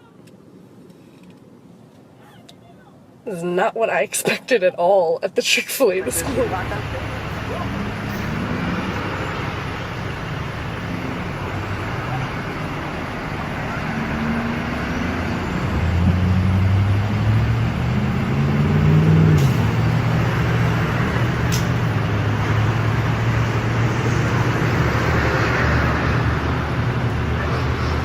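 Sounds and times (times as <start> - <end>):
vehicle engine running: 6.0 - 18.8.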